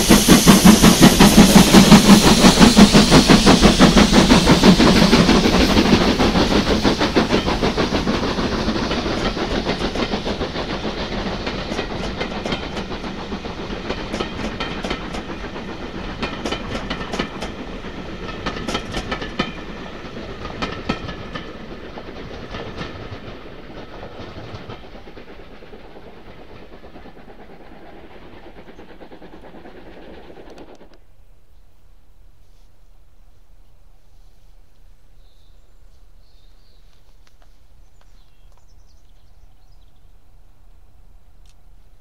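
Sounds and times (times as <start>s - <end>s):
train wheels clicking over rail joints: 0.0s - 31.0s.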